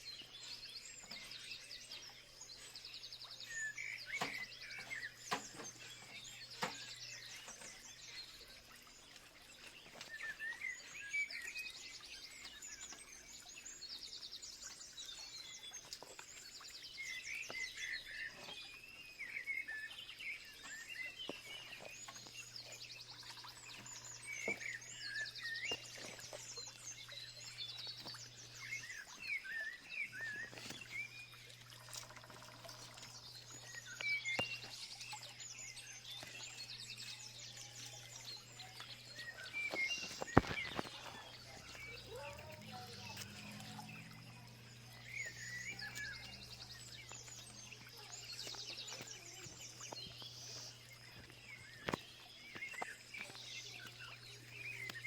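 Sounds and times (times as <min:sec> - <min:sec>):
birds chirping and singing: 0:00.0 - 0:55.0.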